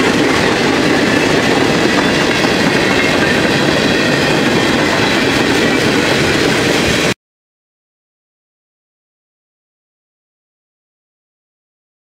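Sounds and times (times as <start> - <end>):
freight train wheels rumbling on rail: 0.0 - 7.2.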